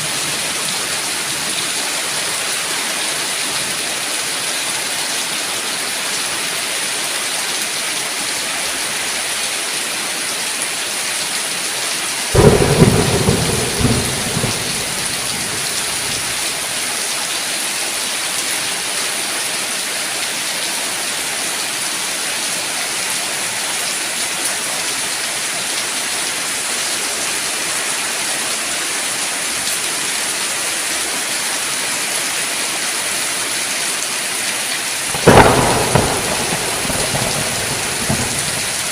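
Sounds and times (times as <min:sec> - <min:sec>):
heavy rain: 0:00.0 - 0:38.9
thunderclap rumbling: 0:12.4 - 0:16.6, 0:35.1 - 0:38.9.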